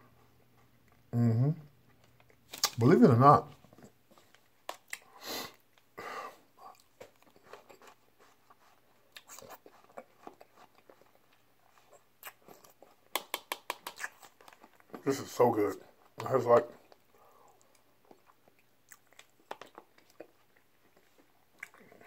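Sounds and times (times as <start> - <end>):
person chewing: 3.5 - 6.0, 6.6 - 15.2, 15.9 - 22.0.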